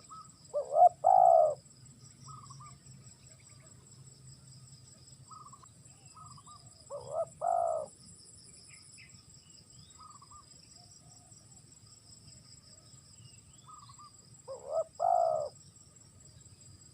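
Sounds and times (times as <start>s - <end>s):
dove cooing: 0.0s - 1.7s, 5.3s - 7.9s, 13.7s - 15.6s
insects trilling: 0.0s - 16.9s.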